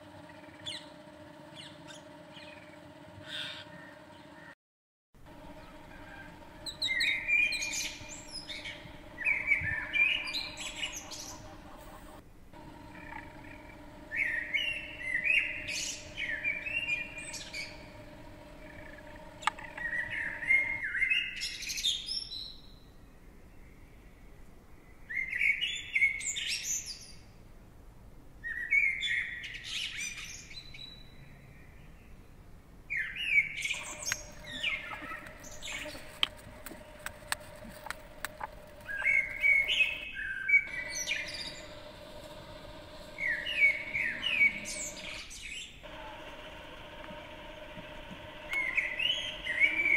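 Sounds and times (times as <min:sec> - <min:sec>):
faint steady hum: 0:00.0 - 0:04.6, 0:05.2 - 0:25.2, 0:31.0 - 0:49.9
songbirds chirping and singing: 0:00.0 - 0:04.6, 0:05.2 - 0:24.2, 0:32.9 - 0:49.9
faint clicks: 0:33.8 - 0:40.0, 0:45.8 - 0:49.9.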